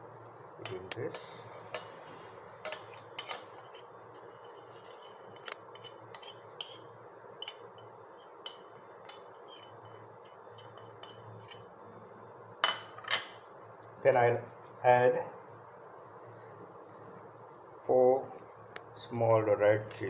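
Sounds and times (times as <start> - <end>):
spoons and bowls clinking: 1.6 - 6.8.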